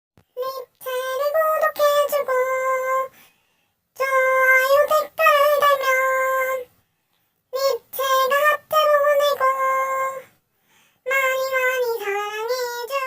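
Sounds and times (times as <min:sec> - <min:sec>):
high voice singing: 0:00.3 - 0:03.2, 0:04.0 - 0:06.7, 0:07.5 - 0:10.4, 0:11.0 - 0:13.0.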